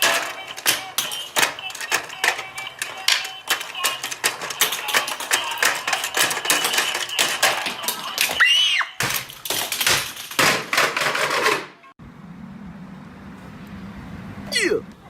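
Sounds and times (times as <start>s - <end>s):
rapid clicking and clattering: 0.0s - 11.8s.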